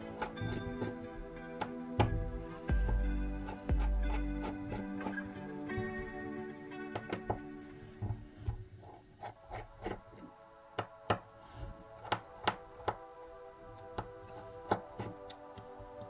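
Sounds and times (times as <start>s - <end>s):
background music: 0.0s - 16.0s
small tools tapping on phone: 10.7s - 11.3s.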